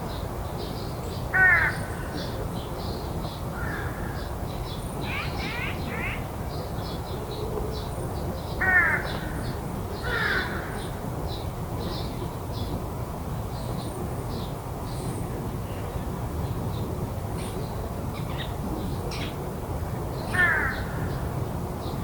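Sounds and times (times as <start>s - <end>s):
crow cawing: 1.4s - 1.8s, 8.6s - 9.1s, 10.1s - 10.7s, 20.3s - 20.9s
small birds chirping: 4.5s - 12.8s.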